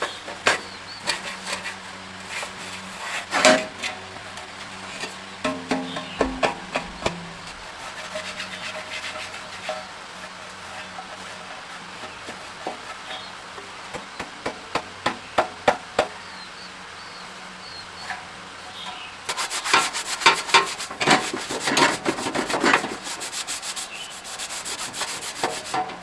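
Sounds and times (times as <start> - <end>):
hand tools knocking: 3.3 - 10.0, 11.9 - 16.6.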